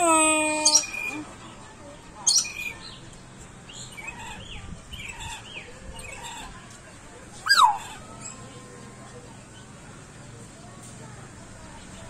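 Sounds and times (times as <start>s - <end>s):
bird calls and chirps: 0.5s - 1.2s, 2.2s - 3.1s, 3.7s - 6.6s, 7.4s - 8.5s.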